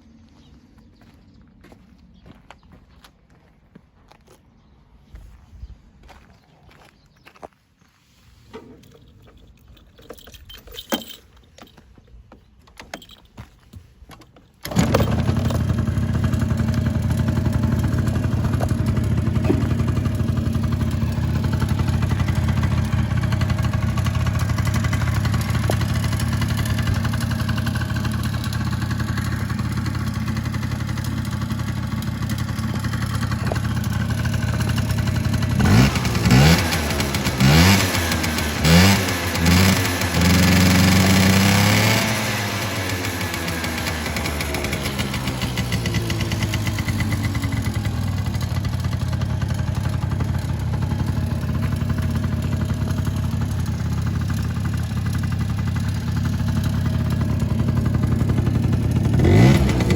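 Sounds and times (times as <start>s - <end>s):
scooter engine starting and idling: 8.4s - 59.9s
scooter engine revving: 14.6s - 59.9s.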